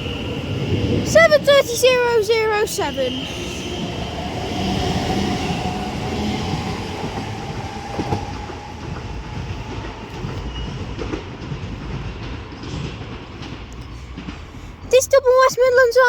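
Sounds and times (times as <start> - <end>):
wheels rumbling on rail: 0.0 - 16.0
wheels clicking over rail joints: 5.6 - 16.0.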